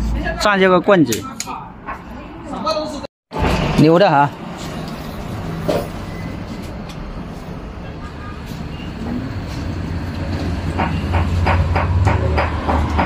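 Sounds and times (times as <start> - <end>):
sharp knocks: 10.6 - 13.0.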